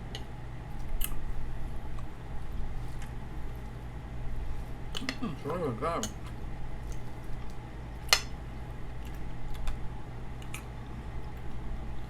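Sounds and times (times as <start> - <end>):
steady low hum: 0.0 - 12.0
person chewing food: 0.1 - 8.3, 8.9 - 11.6
soft mouth clicks: 10.4 - 10.7.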